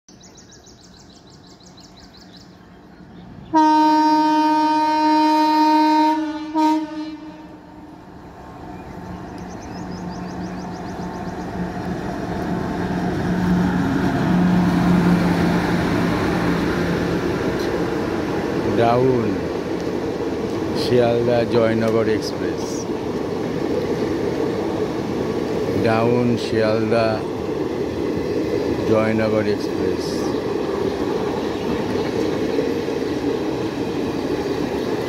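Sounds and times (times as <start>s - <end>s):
train rumbling past: 0.1s - 35.0s
train horn blasts: 3.5s - 7.9s.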